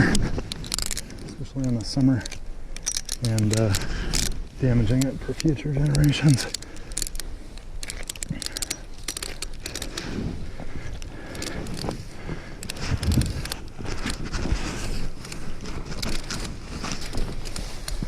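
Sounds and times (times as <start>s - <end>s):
footsteps crunching in snow: 11.6s - 18.0s.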